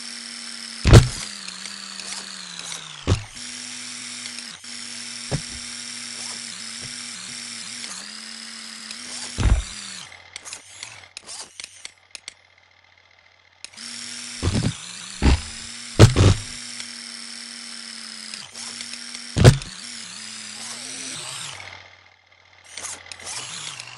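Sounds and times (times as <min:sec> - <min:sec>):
electric motor whining: 0:00.0 - 0:11.7, 0:13.7 - 0:22.0, 0:22.6 - 0:23.9
loud thumps: 0:00.9 - 0:01.2, 0:03.1 - 0:03.4, 0:05.3 - 0:05.6, 0:09.4 - 0:09.7, 0:14.4 - 0:16.6, 0:19.4 - 0:19.7.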